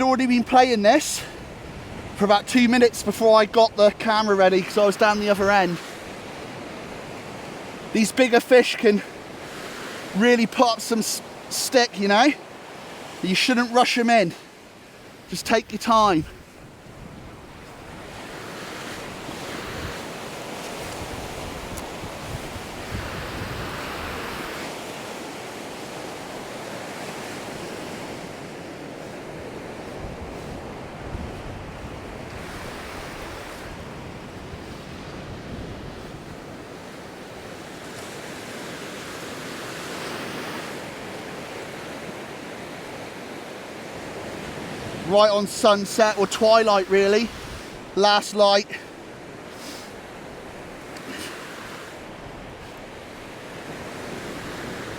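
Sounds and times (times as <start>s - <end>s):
surf washing on sand: 0.0s - 54.9s
wind on microphone: 20.8s - 24.6s, 29.8s - 36.6s.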